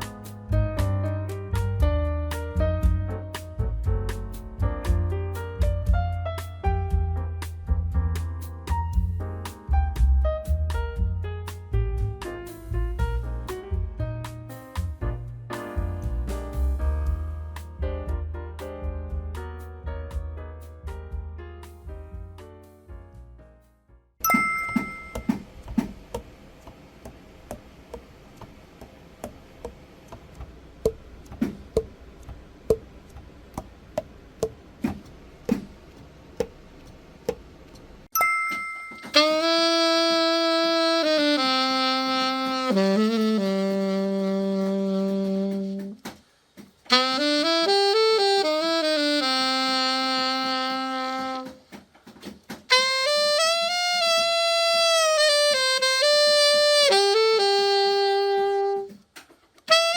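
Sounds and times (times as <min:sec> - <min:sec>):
alto saxophone long notes: 0:39.2 - 0:46.0, 0:46.9 - 0:51.6, 0:52.7 - 0:59.0, 0:59.7 - 0:59.9.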